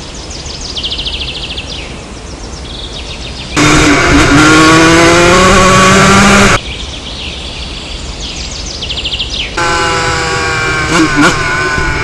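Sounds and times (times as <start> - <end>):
birds chirping: 0.0 - 12.0
motocross bike engine accelerating: 3.6 - 6.6, 9.6 - 12.0.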